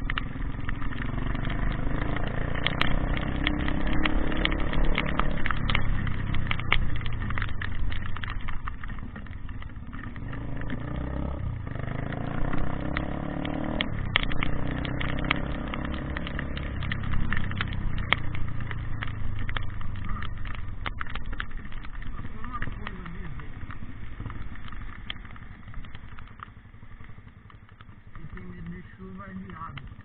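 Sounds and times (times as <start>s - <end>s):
engine humming: 0.0s - 30.0s
sharp clicks and taps: 0.0s - 30.0s.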